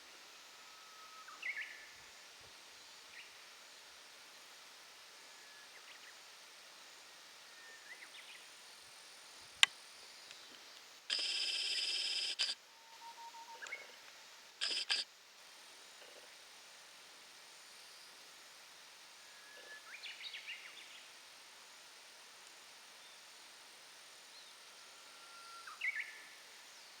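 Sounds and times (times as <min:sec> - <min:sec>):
faint bird chirps: 0:10.4 - 0:15.0, 0:24.3 - 0:27.0
sharp click: 0:11.1 - 0:12.6, 0:14.6 - 0:15.0.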